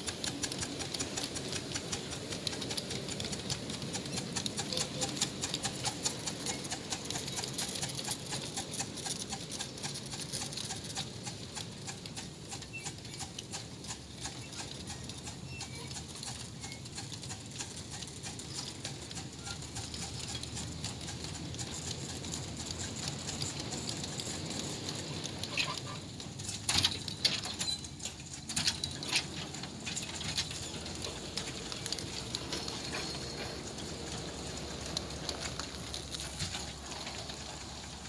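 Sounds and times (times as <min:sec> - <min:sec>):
miniature steam train running: 0:00.0 - 0:38.0.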